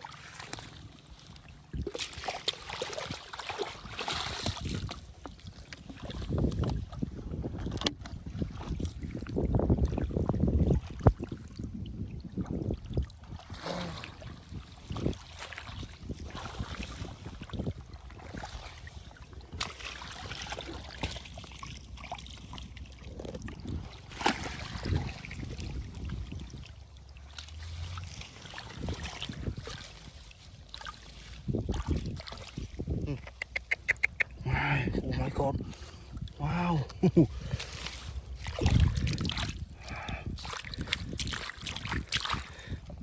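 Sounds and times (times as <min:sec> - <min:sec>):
water sloshing and splashing: 0:00.0 - 0:43.0
wind buffeting microphone: 0:05.8 - 0:19.6, 0:22.4 - 0:26.9, 0:27.7 - 0:30.7, 0:31.3 - 0:33.3, 0:34.1 - 0:43.0.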